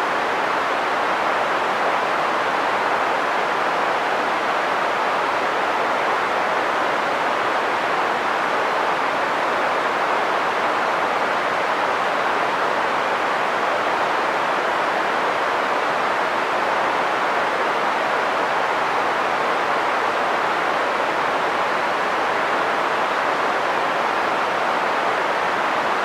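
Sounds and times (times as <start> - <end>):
steady green noise hiss: 0.0 - 26.0.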